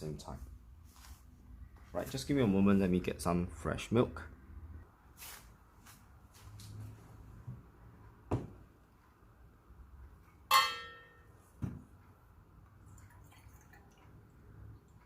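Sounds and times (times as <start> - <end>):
loud ringing clink: 10.5 - 11.4
kitchenware knocking: 10.5 - 11.8.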